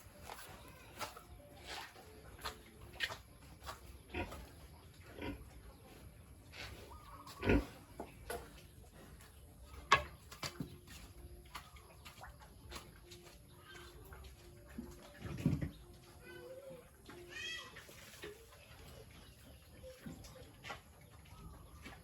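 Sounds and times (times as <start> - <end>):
pigs grunting: 4.0 - 5.8, 6.5 - 8.0.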